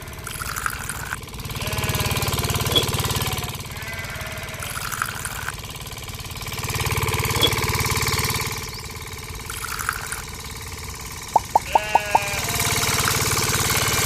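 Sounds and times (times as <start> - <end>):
small engine chugging: 0.0 - 14.0.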